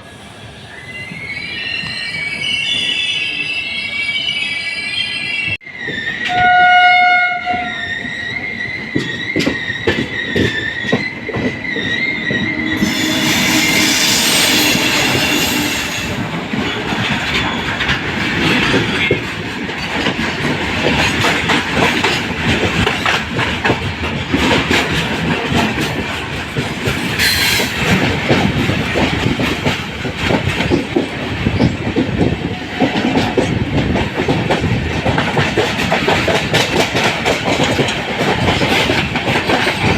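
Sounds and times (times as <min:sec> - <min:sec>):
wheel squeal: 0:00.7 - 0:06.4, 0:07.7 - 0:17.8
train horn: 0:06.3 - 0:07.9, 0:12.4 - 0:16.2
train coaches rumbling and clacking: 0:07.4 - 0:39.9.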